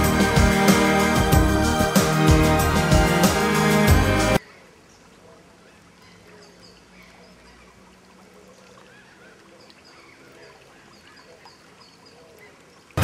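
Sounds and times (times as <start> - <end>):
faint bird chirps and calls: 4.4 - 13.0.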